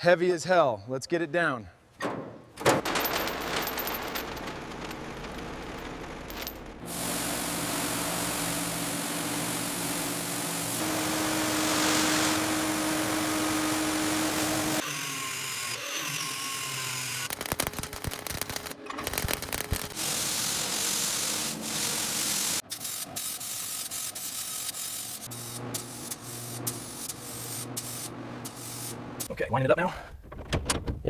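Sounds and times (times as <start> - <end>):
whirring power tool: 7.0 - 17.3
rapid sharp clicks and knocks: 17.3 - 20.0.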